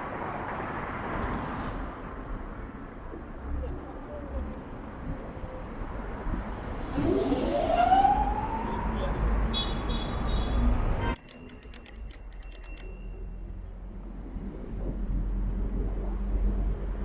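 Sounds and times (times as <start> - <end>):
city street traffic: 0.0 - 17.0
rising siren-like wail: 6.9 - 9.3.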